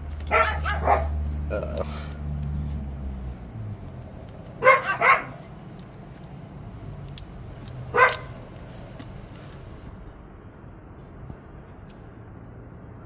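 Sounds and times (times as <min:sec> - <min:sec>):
dog barking: 0:00.2 - 0:02.1, 0:04.6 - 0:05.6, 0:07.8 - 0:08.4.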